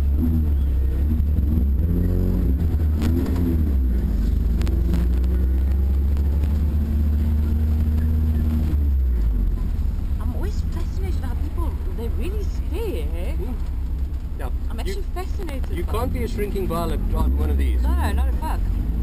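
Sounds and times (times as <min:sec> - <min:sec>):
sports car engine pulling away: 0:00.0 - 0:10.5.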